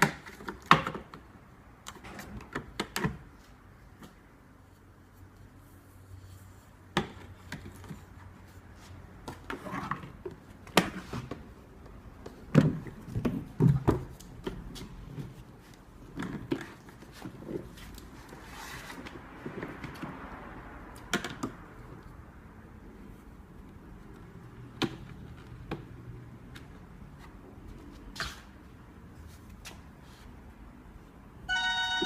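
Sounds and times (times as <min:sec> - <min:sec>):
soft rustle: 0:03.4 - 0:06.9.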